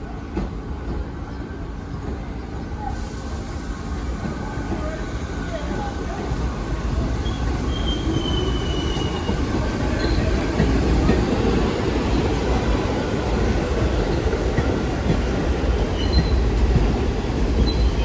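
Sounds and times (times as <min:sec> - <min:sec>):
subway train wheels rumbling on rail: 0:00.0 - 0:18.0
high wheel squeal: 0:07.0 - 0:10.6.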